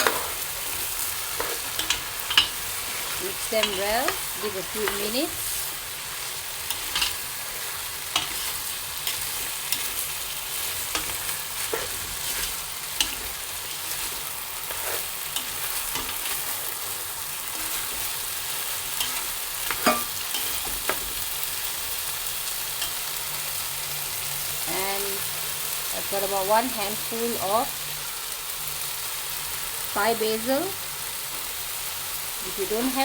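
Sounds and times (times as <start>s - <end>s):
spatula scraping a pan: 0.0s - 21.2s
food sizzling in a hot pan: 0.0s - 33.0s.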